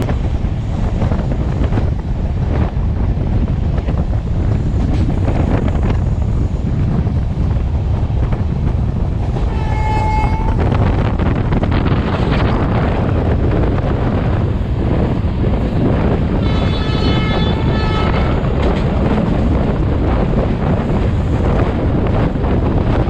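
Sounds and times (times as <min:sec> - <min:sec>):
train coach rumbling on track: 0:00.0 - 0:23.0
train horn: 0:09.4 - 0:10.8, 0:16.4 - 0:18.4.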